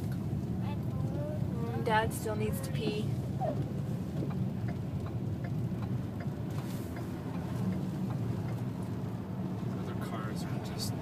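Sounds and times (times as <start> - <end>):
car road and engine rumble: 0.0 - 11.0
faint light ticks: 3.6 - 9.9.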